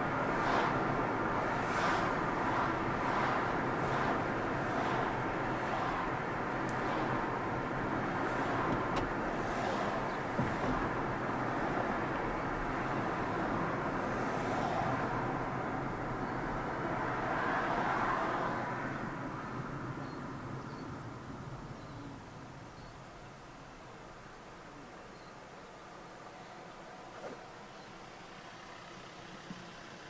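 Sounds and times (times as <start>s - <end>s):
car tyres road noise: 0.0s - 30.0s.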